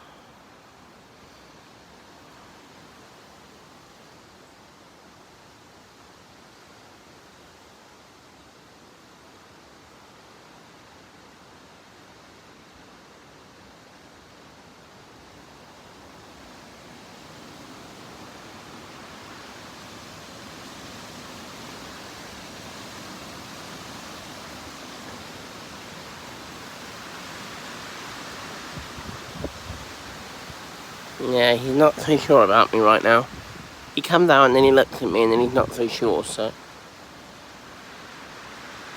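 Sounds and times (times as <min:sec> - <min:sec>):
wind blowing: 0:28.5 - 0:36.6.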